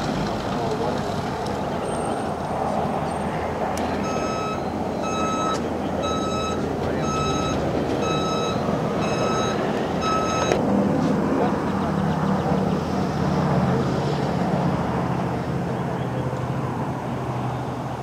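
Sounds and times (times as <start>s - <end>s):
engine rumble: 0.0s - 18.0s
vehicle back-up alarm beeping: 3.9s - 10.6s.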